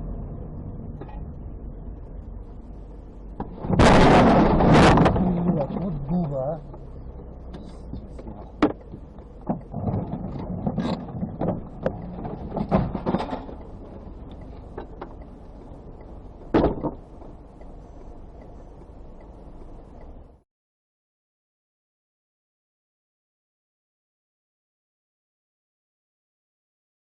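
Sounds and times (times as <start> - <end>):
road rumble in car cabin: 0.0 - 20.4
sharp knocks and thumps: 3.4 - 15.4, 16.4 - 17.4.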